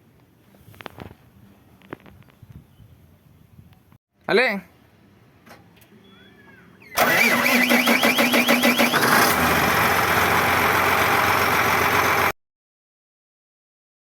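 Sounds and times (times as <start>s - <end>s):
tractor starter motor cranking: 6.9s - 12.3s
tractor engine running: 6.9s - 12.4s.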